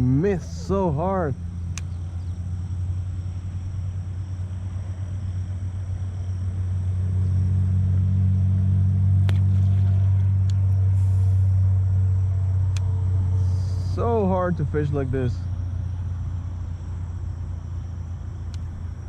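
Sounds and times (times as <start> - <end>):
motor humming: 0.0 - 19.0
faint sharp clicks: 1.7 - 2.0, 18.5 - 18.7.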